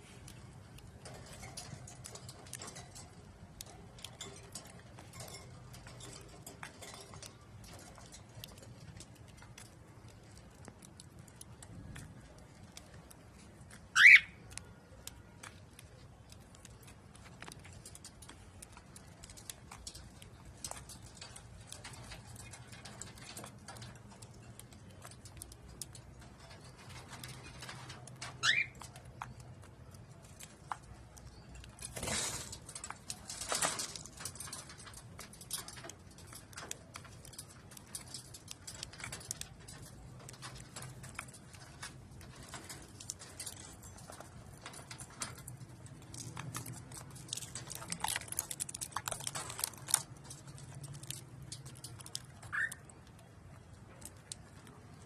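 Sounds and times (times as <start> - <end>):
cockatiel call: 14.0 - 14.4, 28.4 - 28.8, 52.5 - 52.8.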